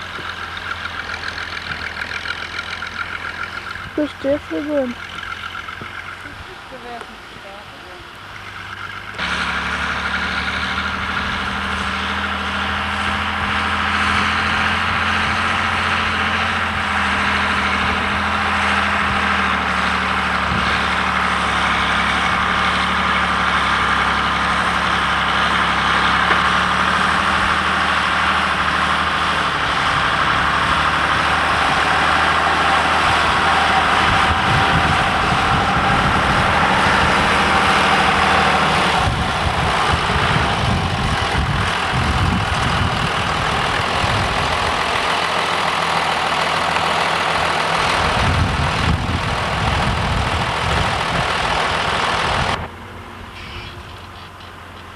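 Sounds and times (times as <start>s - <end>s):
tractor diesel engine running: 0.0s - 54.9s
rough low rumble: 26.3s - 54.2s.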